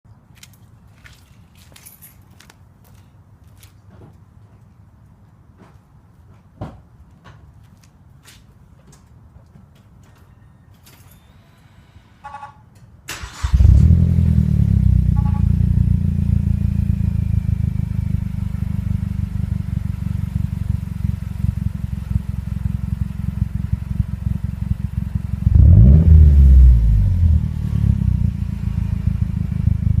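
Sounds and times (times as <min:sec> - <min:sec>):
car engine starting and idling: 0:13.1 - 0:30.0
engine revving: 0:13.2 - 0:17.8, 0:25.4 - 0:30.0.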